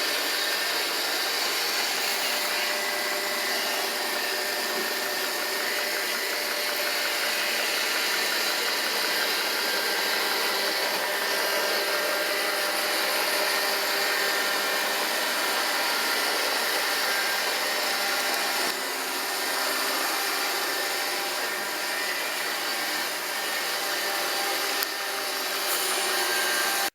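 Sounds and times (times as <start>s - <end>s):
robot vacuum running: 0.0s - 26.9s.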